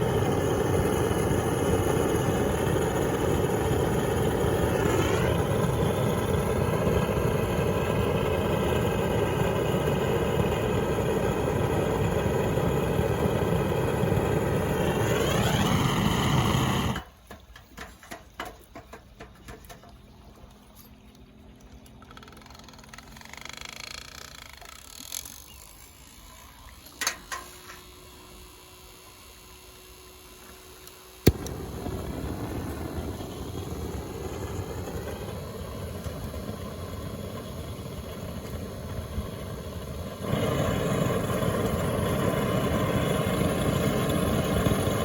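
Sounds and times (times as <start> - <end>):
motor running: 0.0 - 17.0, 21.8 - 45.0
small clicks and knocks: 17.2 - 20.1.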